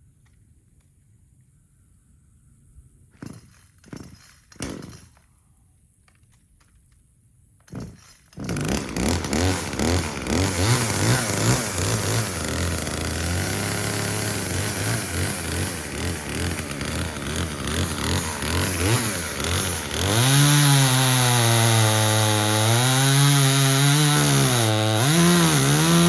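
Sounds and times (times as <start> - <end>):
chainsaw engine revving: 7.7 - 26.0.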